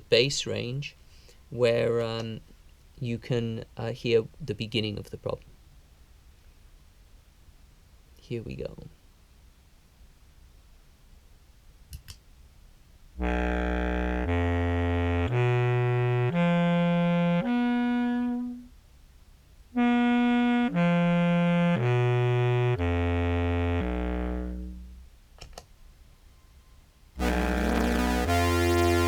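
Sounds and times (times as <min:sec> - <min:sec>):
contrabass clarinet notes: 0:13.2 - 0:18.8, 0:19.8 - 0:25.1, 0:27.2 - 0:29.0.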